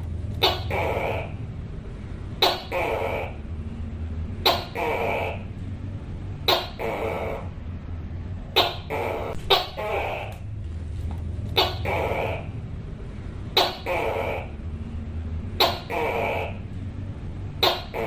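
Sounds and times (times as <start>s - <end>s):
low hum: 0.0s - 18.0s
gecko calling: 0.4s - 1.5s, 2.4s - 3.6s, 4.4s - 5.6s, 6.4s - 7.6s, 8.5s - 10.6s, 11.5s - 12.7s, 13.5s - 14.6s, 15.5s - 16.7s, 17.6s - 18.0s.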